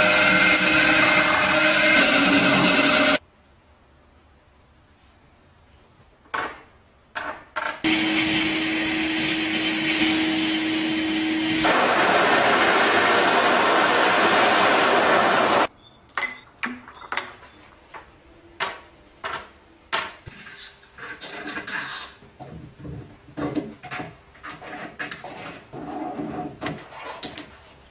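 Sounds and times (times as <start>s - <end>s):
electric power tool running: 0.0s - 3.2s, 7.9s - 15.7s.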